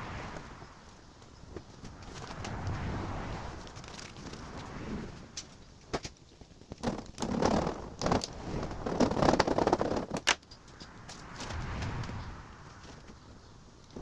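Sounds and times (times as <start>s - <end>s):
foil mat crackling and crinkling: 3.6s - 4.7s, 5.4s - 10.4s.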